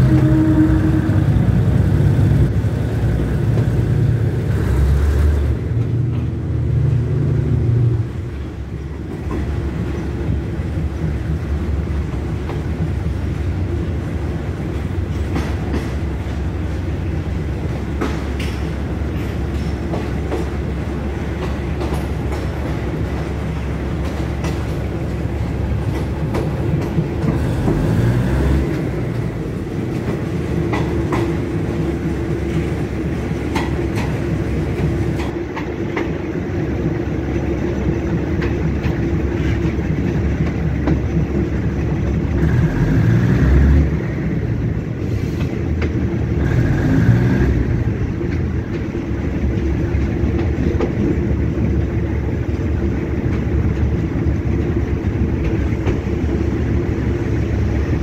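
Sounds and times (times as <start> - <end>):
train rumbling on tracks: 0.0 - 58.0
wheels clacking over rail joints: 0.0 - 58.0.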